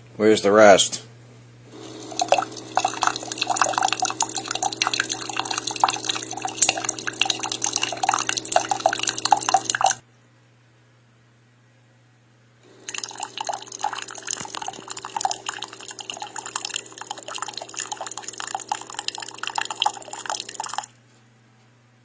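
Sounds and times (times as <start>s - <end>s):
pump hum: 1.7s - 10.0s, 12.6s - 20.9s
coffee maker dripping stream: 1.8s - 10.0s, 12.7s - 20.9s.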